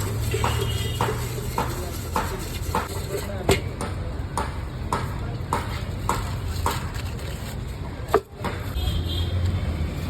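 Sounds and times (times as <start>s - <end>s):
utensil knocking: 0.0s - 6.9s
street traffic hum: 0.0s - 10.0s.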